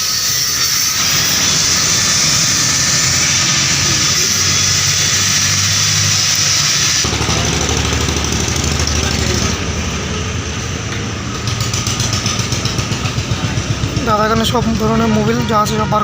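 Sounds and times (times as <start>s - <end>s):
loud steady hiss: 0.0s - 7.2s.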